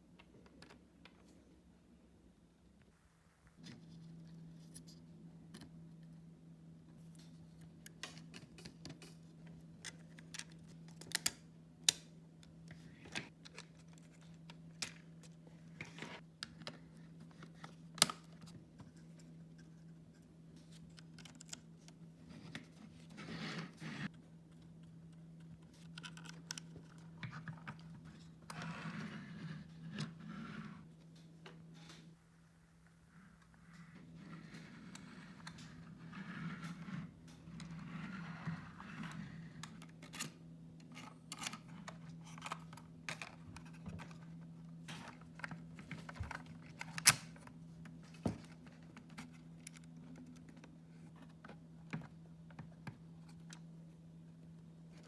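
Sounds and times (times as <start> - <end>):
plastic parts clicking and scraping: 20.6 - 23.8, 24.6 - 29.1, 34.1 - 53.6.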